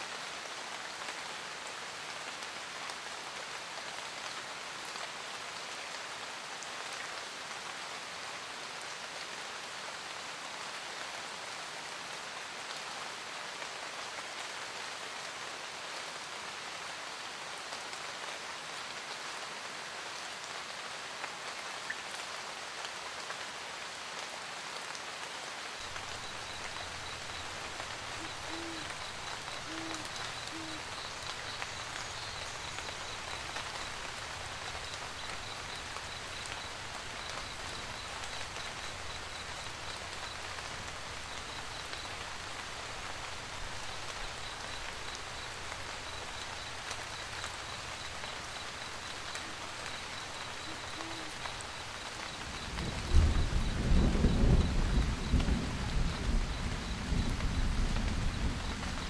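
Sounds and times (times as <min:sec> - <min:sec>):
rain pattering: 0:00.0 - 0:59.0
owl hooting: 0:25.9 - 0:39.0, 0:47.1 - 0:52.7.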